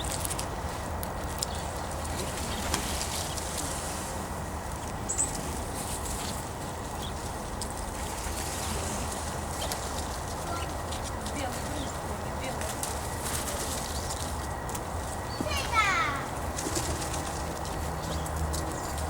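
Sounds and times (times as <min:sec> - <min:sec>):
birds clicking and rustling: 0:00.0 - 0:03.9, 0:04.7 - 0:19.0
bird chirp: 0:05.1 - 0:05.4, 0:17.6 - 0:19.0.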